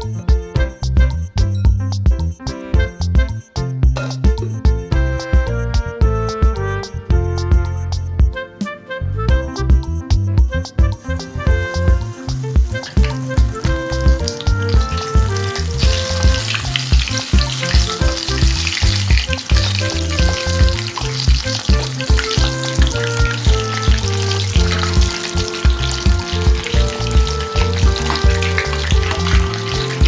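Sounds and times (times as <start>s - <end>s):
background music with a beat: 0.0s - 30.0s
hot oil sizzling: 10.6s - 30.0s.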